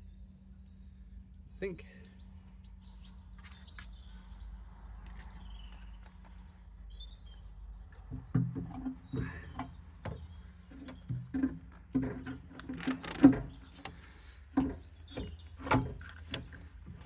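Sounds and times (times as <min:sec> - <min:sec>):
faint birds chirping: 0:00.0 - 0:17.0
metal knocks and clunks: 0:07.9 - 0:17.0.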